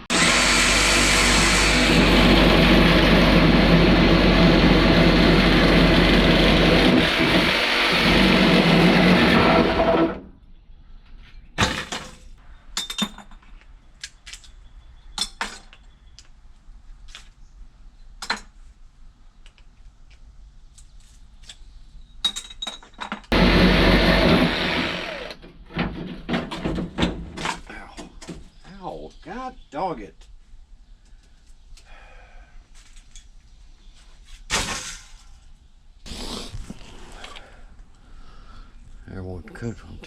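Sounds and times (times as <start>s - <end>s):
loud motor-driven machine: 0.0s - 10.2s, 23.3s - 25.4s.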